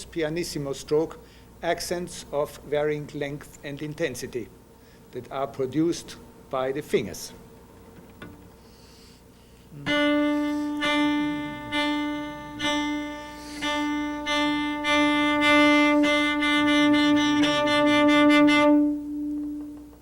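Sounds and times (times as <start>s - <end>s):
cello held note with pulses: 9.7s - 20.0s.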